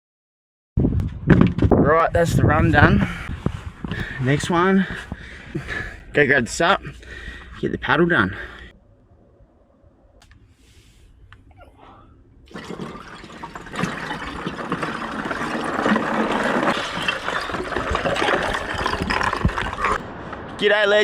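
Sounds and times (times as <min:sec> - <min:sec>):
water rushing and splashing: 0:12.5 - 0:20.0.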